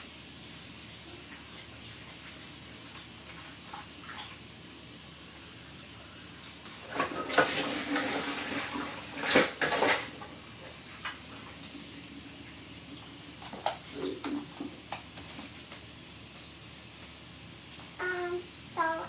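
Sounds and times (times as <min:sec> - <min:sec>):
dishes and utensils clinking: 0:06.9 - 0:10.3.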